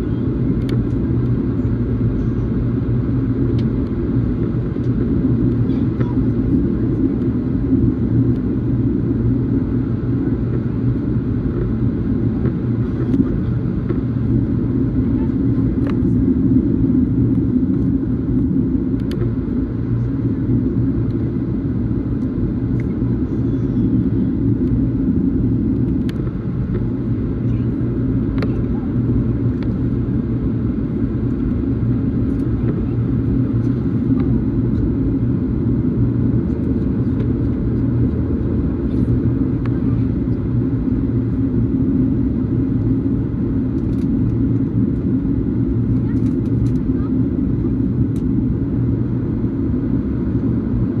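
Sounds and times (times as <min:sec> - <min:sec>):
airplane cabin rumble: 0:00.0 - 0:51.0.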